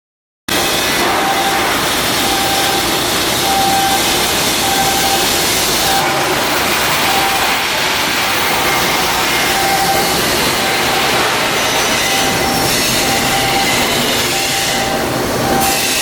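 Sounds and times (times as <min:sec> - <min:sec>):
loud machinery noise: 0:00.5 - 0:16.0
short beeping tone: 0:01.0 - 0:06.4, 0:07.0 - 0:07.6, 0:09.4 - 0:11.1, 0:11.8 - 0:16.0.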